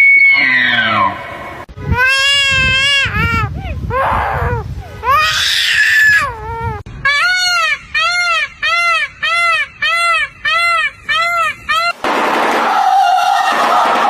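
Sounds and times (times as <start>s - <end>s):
shrill noisy scream: 5.1s - 6.3s, 12.5s - 14.0s.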